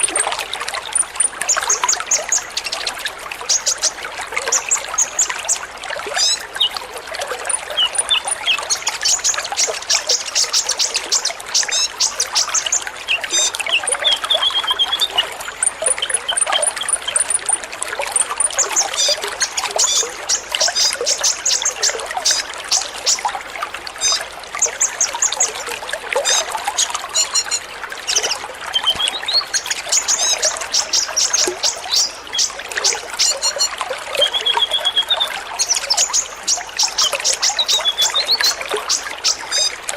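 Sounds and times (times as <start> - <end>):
trickle of running water: 0.0 - 39.9
sunbirds chirping: 7.5 - 15.2, 27.2 - 39.8.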